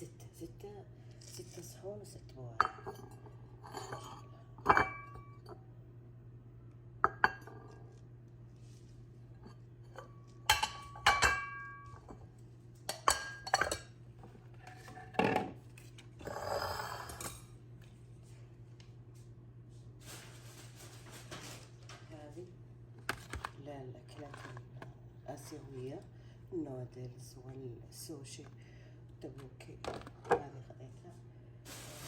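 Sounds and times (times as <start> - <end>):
plates and bowls clinking: 2.6 - 5.6, 7.0 - 7.9, 9.9 - 12.2, 12.9 - 14.0, 16.2 - 17.6.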